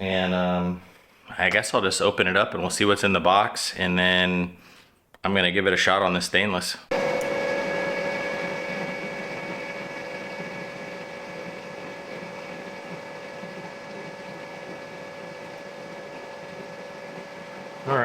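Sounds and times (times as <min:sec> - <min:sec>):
electric fan hum: 0:06.9 - 0:18.0.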